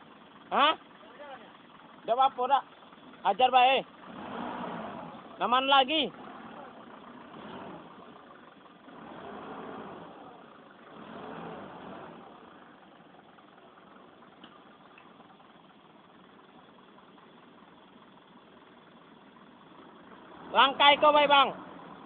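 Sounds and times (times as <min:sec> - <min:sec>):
vehicle engine revving: 0:03.2 - 0:15.7, 0:19.4 - 0:22.0.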